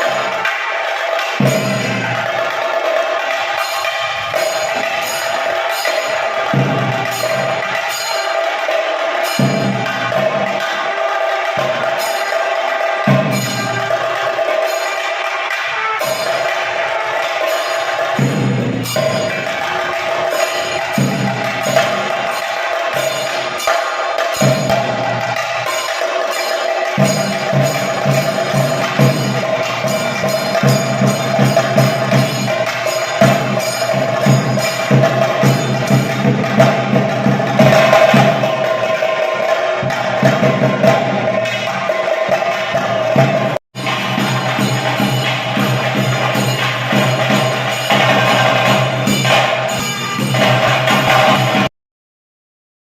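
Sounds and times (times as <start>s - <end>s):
cymbal-like strikes: 0.0s - 51.7s
fast dense drumming: 39.7s - 51.7s.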